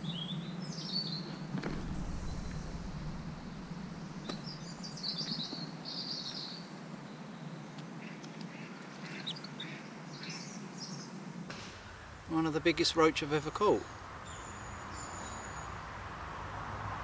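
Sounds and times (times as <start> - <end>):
steady low hum: 0.0 - 8.0
small birds chirping: 0.0 - 16.0.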